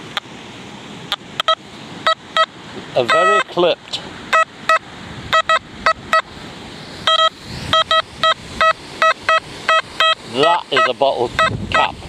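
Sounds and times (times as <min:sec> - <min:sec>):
metal detector beeps: 0:01.4 - 0:03.5, 0:04.3 - 0:06.2, 0:07.0 - 0:11.9.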